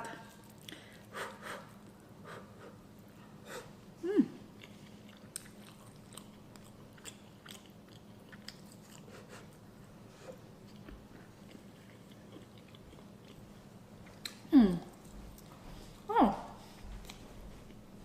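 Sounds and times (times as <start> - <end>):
chewing and mouth sounds: 4.5 - 9.6, 10.3 - 17.9.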